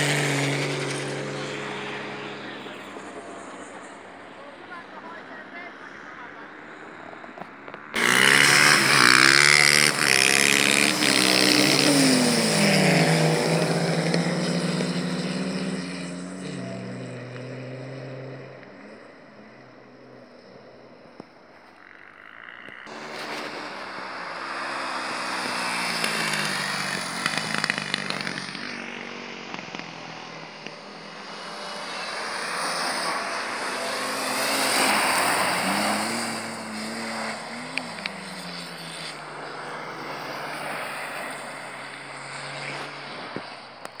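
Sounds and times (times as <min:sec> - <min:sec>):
rally car engines revving: 0:00.0 - 0:44.0.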